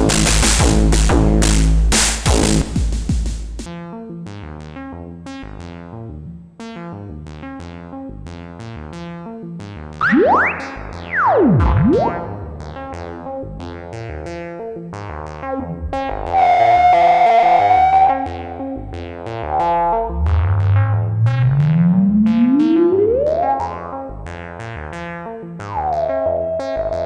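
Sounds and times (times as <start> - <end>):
synthesizer bass line: 0.0 - 3.7, 10.0 - 13.6, 15.3 - 25.0.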